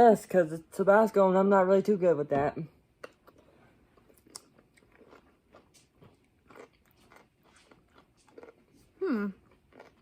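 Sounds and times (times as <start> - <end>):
crunching and chewing: 2.9 - 10.0.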